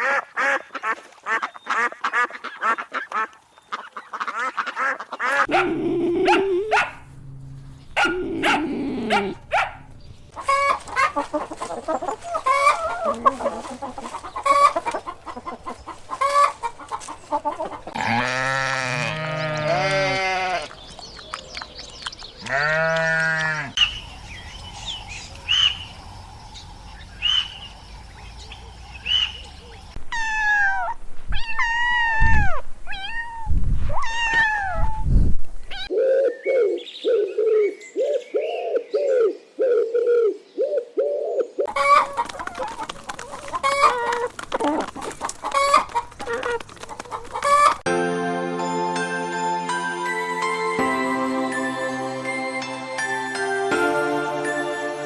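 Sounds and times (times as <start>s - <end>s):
long animal calls: 5.4s - 6.8s
bird-like chirps: 23.8s - 30.0s.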